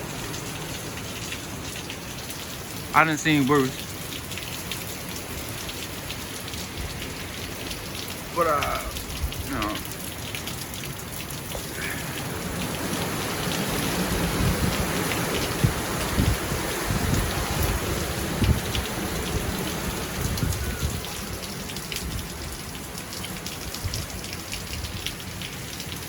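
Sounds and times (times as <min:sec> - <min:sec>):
heavy rain pouring: 0:00.0 - 0:26.0
wind rumbling: 0:11.6 - 0:22.8.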